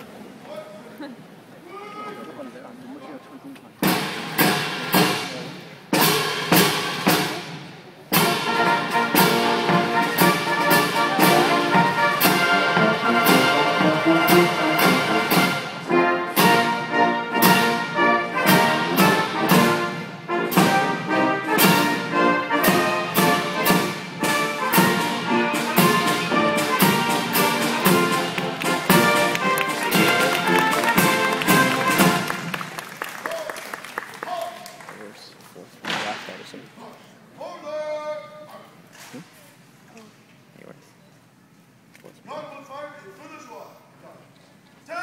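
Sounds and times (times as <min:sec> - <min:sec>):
sharp percussive strokes: 0:03.8 - 0:16.8
military brass band playing: 0:03.8 - 0:33.1.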